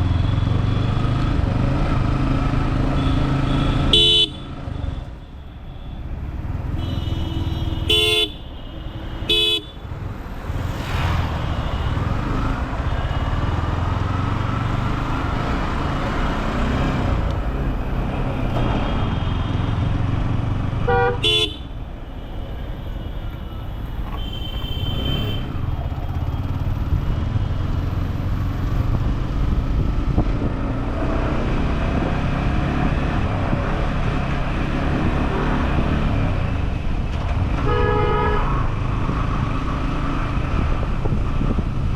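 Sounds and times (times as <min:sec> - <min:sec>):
motorcycle engine and road noise: 0:00.0 - 0:41.9
vehicle horn toots: 0:03.0 - 0:04.5, 0:06.7 - 0:09.8, 0:20.8 - 0:21.7, 0:24.1 - 0:25.5, 0:37.6 - 0:38.6.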